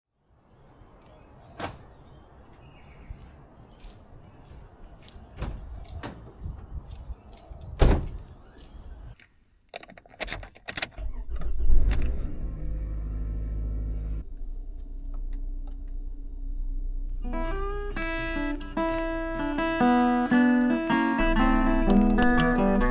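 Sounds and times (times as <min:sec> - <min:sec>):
engine idling hum: 0:11.1 - 0:20.0.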